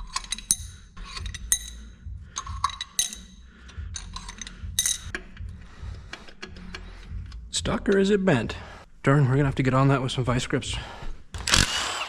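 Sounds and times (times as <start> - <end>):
metal pushrods clinking: 0.0 - 6.9.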